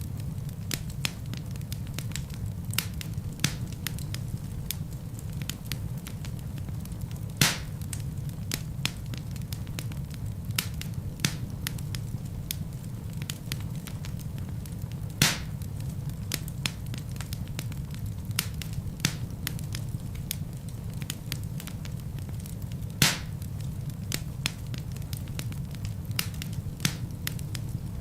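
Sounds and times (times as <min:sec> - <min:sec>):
wood fire crackling: 0:00.0 - 0:28.0
fire popping sharply: 0:00.2 - 0:28.0.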